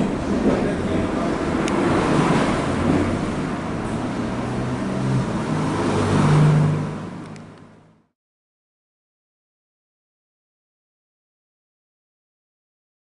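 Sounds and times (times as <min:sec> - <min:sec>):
engine humming: 0:00.0 - 0:08.1.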